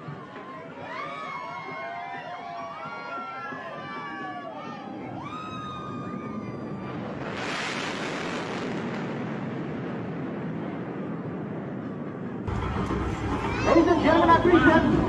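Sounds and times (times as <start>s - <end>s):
fighter jet roaring past: 5.4s - 15.0s.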